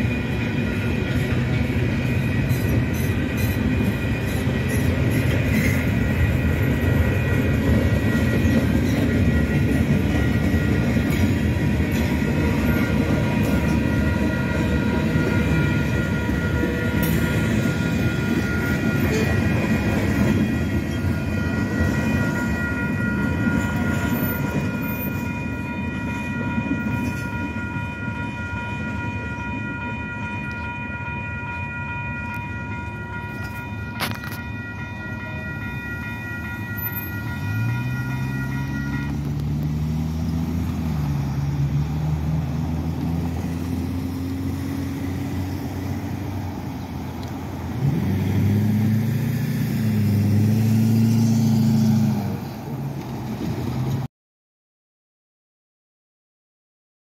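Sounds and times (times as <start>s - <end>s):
crossing warning bell ringing: 0.0s - 48.9s
freight train rumbling past: 0.0s - 54.1s
cars accelerating: 47.7s - 52.4s.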